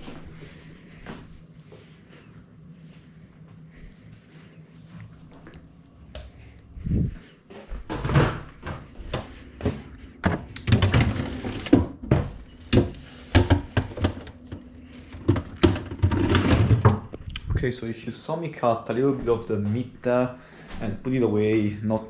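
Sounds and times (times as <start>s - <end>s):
kitchen knocks and thunks: 7.8s - 17.1s.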